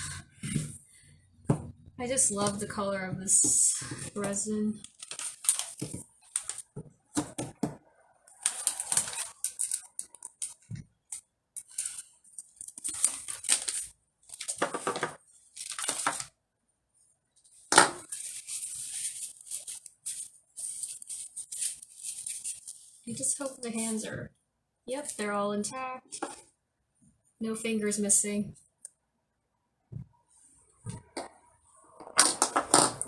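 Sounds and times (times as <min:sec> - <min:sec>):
packaging rustling: 0:03.8 - 0:07.4, 0:08.3 - 0:16.3, 0:18.0 - 0:22.9.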